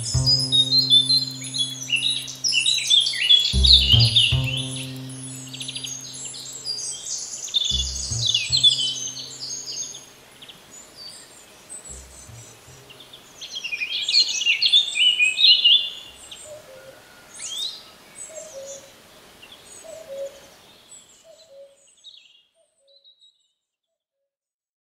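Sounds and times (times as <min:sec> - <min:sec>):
bird singing rapid notes: 0:00.0 - 0:07.0, 0:07.7 - 0:10.0.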